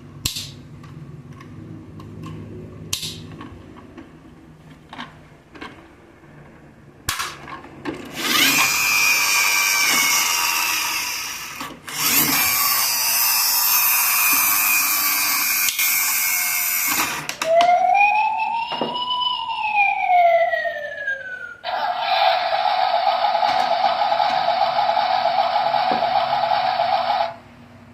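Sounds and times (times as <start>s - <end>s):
electronic siren: 14.4s - 27.4s.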